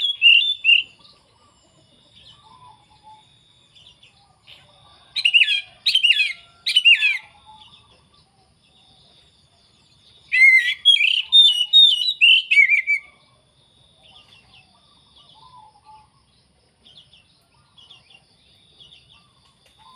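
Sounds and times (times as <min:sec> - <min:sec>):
bird singing whistled phrases: 0:00.0 - 0:01.0, 0:05.2 - 0:07.6, 0:10.3 - 0:13.2.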